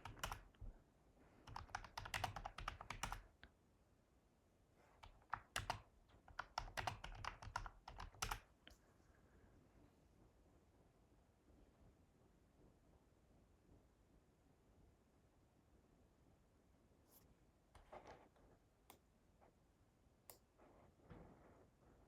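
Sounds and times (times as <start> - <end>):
computer keyboard typing: 0.0 - 0.6, 1.4 - 3.4, 5.0 - 8.5.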